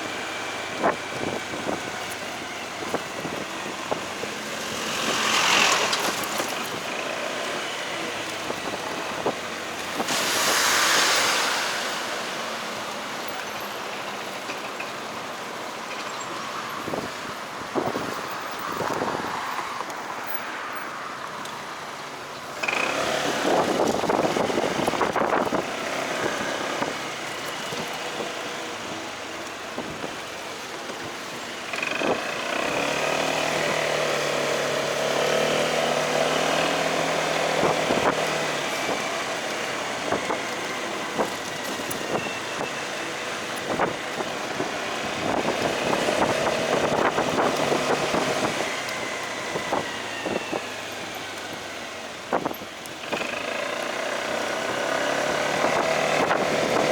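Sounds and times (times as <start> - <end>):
road traffic: 0.0 - 56.9
wind rushing over microphone: 16.8 - 19.6, 22.9 - 28.6, 32.0 - 52.8, 54.2 - 56.9.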